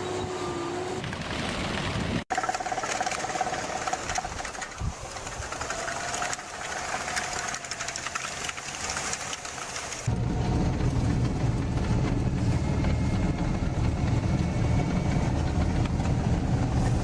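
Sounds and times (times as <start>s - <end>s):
machine clattering: 2.3s - 10.1s.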